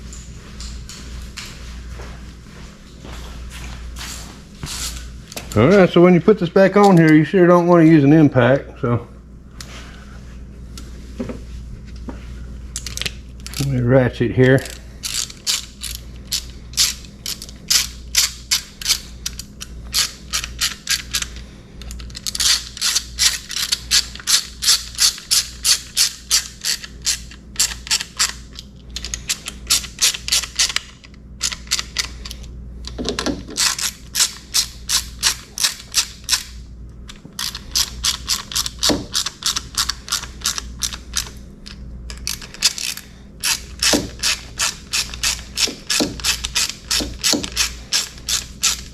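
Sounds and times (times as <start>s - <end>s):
ratchet wrench clicking: 14.6s - 32.4s, 37.4s - 41.4s, 42.1s - 48.9s.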